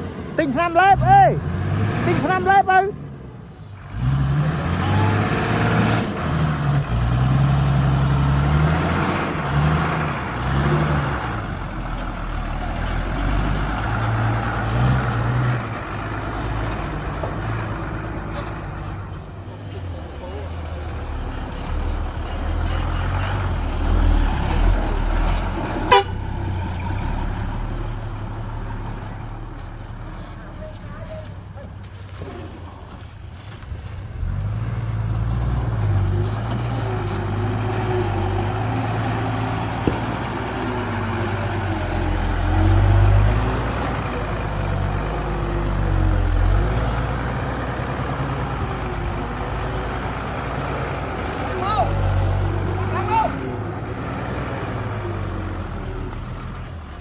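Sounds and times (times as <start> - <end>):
heavy diesel engines rumbling: 0.0 - 57.0.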